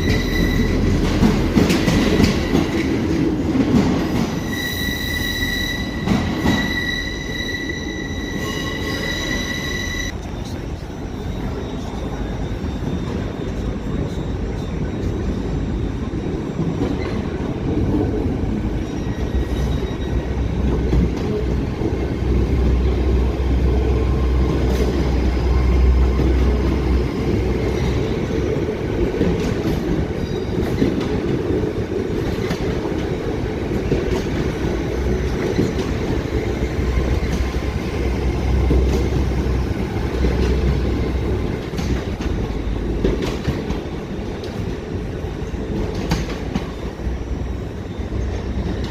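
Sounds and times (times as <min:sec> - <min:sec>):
high-pitched wheel squeals: 0:00.0 - 0:01.0, 0:04.2 - 0:10.2, 0:18.8 - 0:20.6
train wheels rumbling: 0:00.0 - 0:48.9.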